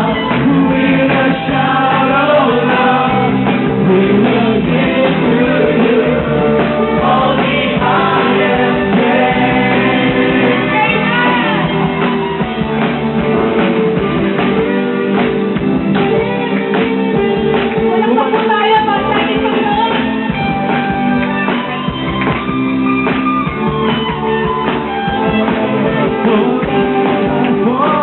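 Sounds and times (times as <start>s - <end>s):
people singing: 0.0s - 12.1s, 26.0s - 28.0s
drums with steady beat: 0.0s - 28.0s
guitar: 0.0s - 28.0s.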